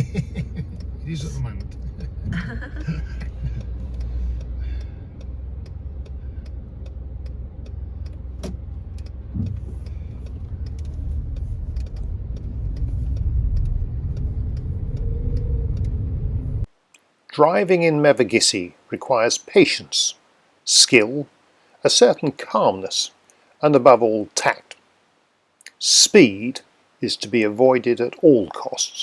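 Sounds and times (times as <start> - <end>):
faint even ticking: 0.0 - 16.0
car interior engine and tyre rumble: 0.0 - 16.7.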